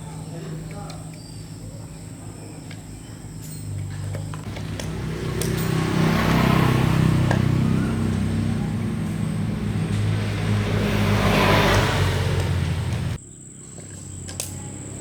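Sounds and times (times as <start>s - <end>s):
small diesel engine running: 4.2s - 13.2s.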